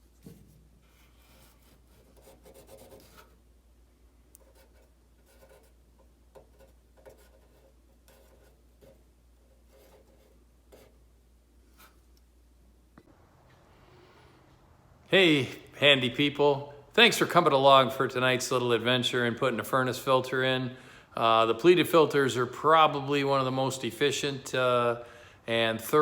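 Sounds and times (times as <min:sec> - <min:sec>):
faint rubbing and scraping: 0:00.0 - 0:03.4, 0:11.6 - 0:12.2, 0:13.0 - 0:14.9
low steady hum: 0:00.0 - 0:26.0.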